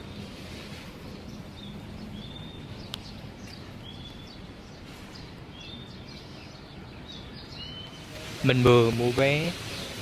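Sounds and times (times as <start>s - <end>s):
bird whistling calls: 5.6s - 8.3s.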